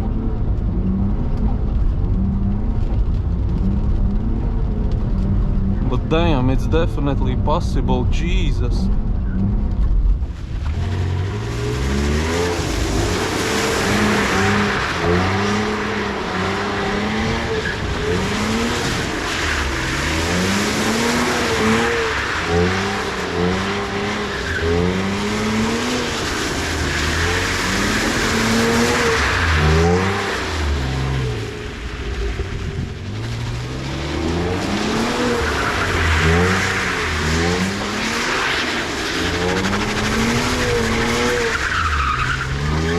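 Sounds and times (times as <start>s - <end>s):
car engine revving: 0.0s - 42.9s
wet tyres skidding: 9.0s - 42.9s.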